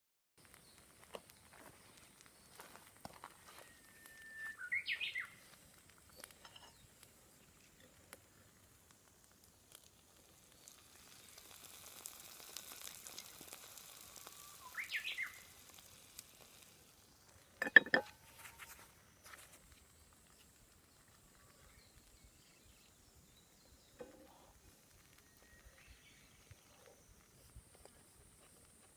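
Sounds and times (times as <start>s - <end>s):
food sizzling in a pan: 0.4s - 28.9s
bird calling: 3.6s - 5.4s, 14.4s - 15.5s.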